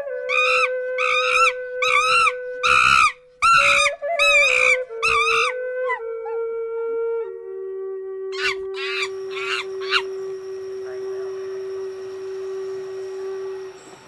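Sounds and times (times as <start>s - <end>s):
soft flute-like background music: 0.0s - 14.0s
animal screaming cries: 0.3s - 5.5s.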